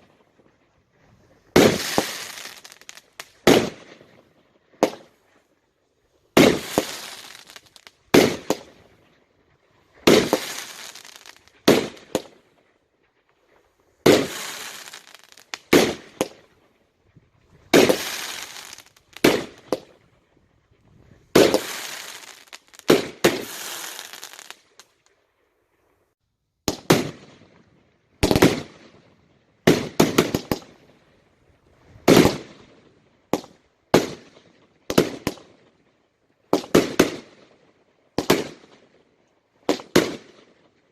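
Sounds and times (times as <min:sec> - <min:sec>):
fireworks bangs with crackling hiss: 0:00.0 - 0:05.4, 0:06.3 - 0:09.2, 0:09.8 - 0:12.5, 0:13.4 - 0:16.6, 0:17.5 - 0:20.0, 0:20.9 - 0:24.9, 0:26.6 - 0:27.6, 0:28.2 - 0:31.0, 0:31.8 - 0:35.7, 0:36.5 - 0:37.5, 0:38.1 - 0:39.0, 0:39.6 - 0:40.7.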